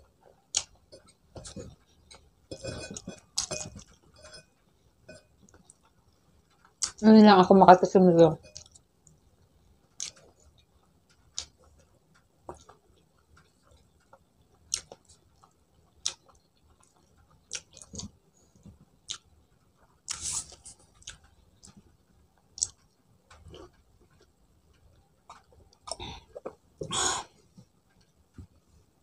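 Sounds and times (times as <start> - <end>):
wet chewing clicks and smacks: 0.5 - 0.8, 10.0 - 19.3, 20.9 - 26.6.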